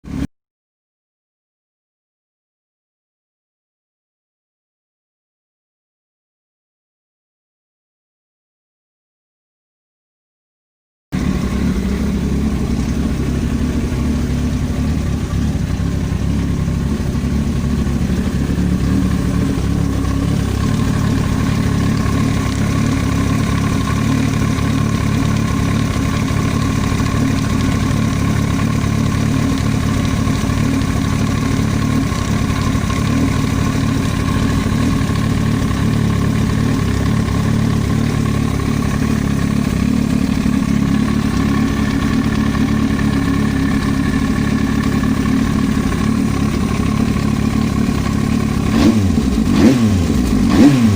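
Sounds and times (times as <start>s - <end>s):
motorcycle engine idling: 11.2s - 50.9s.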